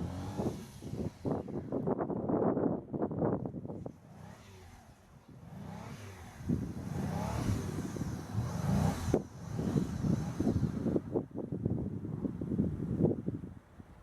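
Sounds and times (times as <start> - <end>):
car engine revving: 0.0 - 1.6, 4.0 - 11.0.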